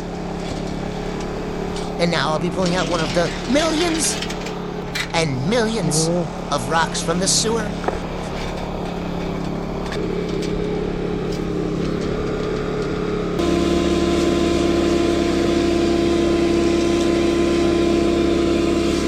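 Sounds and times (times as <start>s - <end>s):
vacuum truck droning hum: 0.0s - 19.0s
rocks pulled through pipe: 0.4s - 10.6s.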